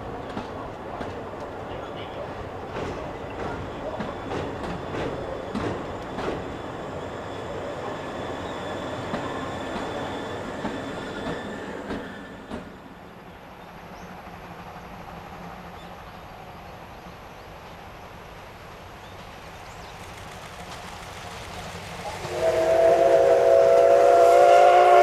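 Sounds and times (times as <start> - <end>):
train wheels clattering over rail joints: 0.0 - 7.5, 9.0 - 12.9.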